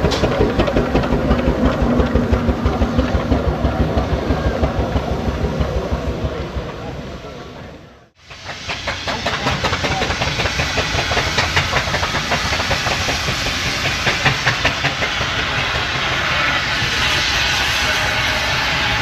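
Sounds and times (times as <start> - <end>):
steam engine beat: 0.0 - 7.0, 8.2 - 19.0
steam hissing: 8.2 - 19.0.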